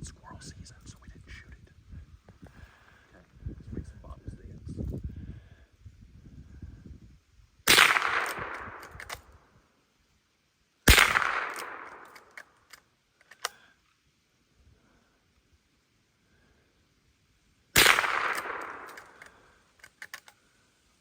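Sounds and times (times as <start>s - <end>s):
rifle shots: 7.7s - 9.4s, 10.9s - 12.5s, 17.8s - 19.4s
light clicks: 11.9s - 14.0s, 18.3s - 20.4s.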